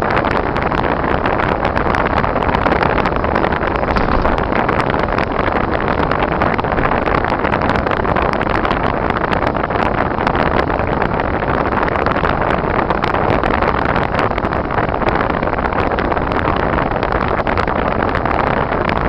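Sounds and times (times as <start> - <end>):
car road and engine noise: 0.1 - 14.6.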